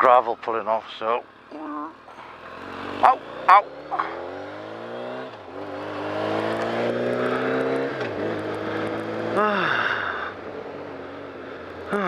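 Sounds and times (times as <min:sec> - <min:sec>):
motorcycle engine accelerating: 0:01.3 - 0:12.0.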